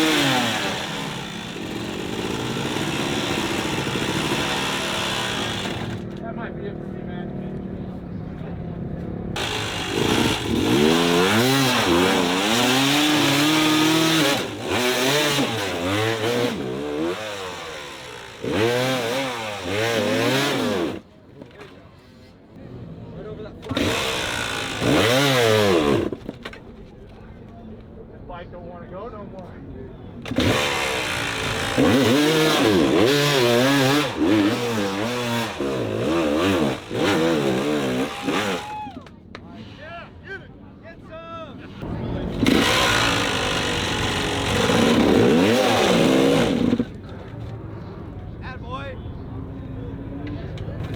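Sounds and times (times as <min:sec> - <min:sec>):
dirt bike engine revving: 0:00.0 - 0:06.2, 0:09.4 - 0:21.0, 0:23.7 - 0:26.3, 0:30.2 - 0:38.7, 0:41.8 - 0:47.1.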